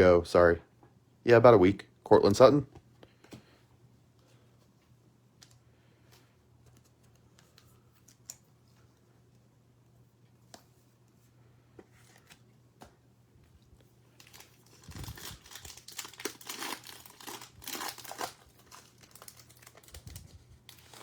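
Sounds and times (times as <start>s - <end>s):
plastic wrapper tearing and crinkling: 14.2s - 21.0s.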